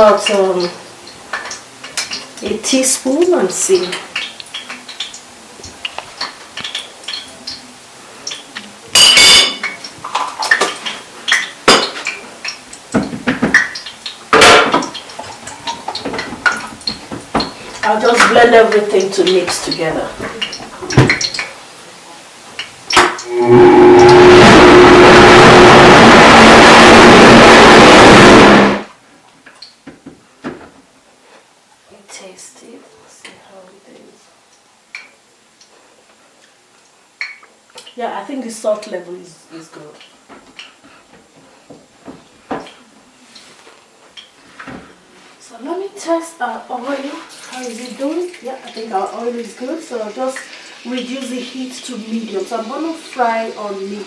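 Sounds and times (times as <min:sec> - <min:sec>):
spoon clinking against bowls: 0:09.0 - 0:09.9
electric blender running: 0:23.2 - 0:28.9.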